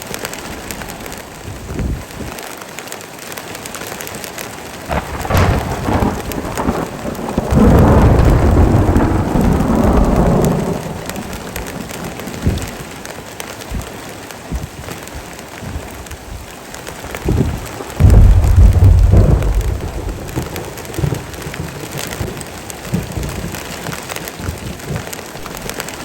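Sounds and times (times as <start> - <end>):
heavy rain falling: 0.0 - 26.0
thunder rumbling: 4.9 - 14.0, 17.1 - 26.0.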